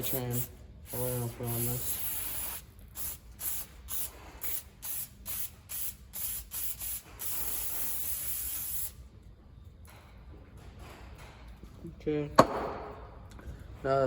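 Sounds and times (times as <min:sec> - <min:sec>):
aerosol can spraying: 0:00.0 - 0:09.0.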